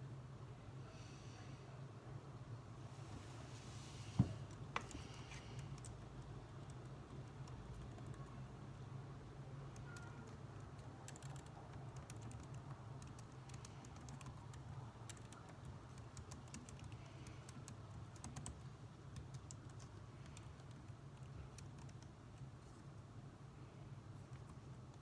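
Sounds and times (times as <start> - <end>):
low background hum: 0.0 - 25.0
light keyboard keystrokes: 9.7 - 22.8.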